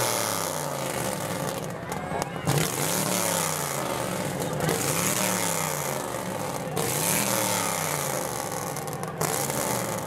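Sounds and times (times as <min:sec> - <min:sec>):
car engine revving: 0:02.4 - 0:10.0.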